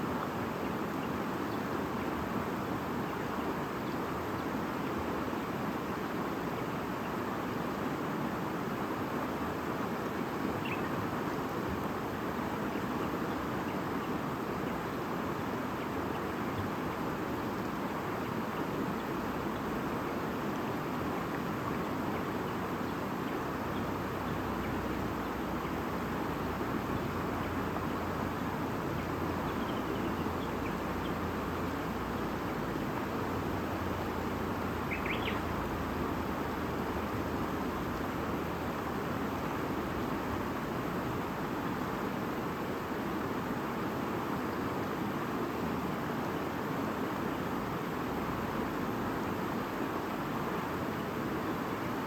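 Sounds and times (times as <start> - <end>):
river rushing and babbling: 0.0 - 52.0
bird chirps: 34.9 - 35.4.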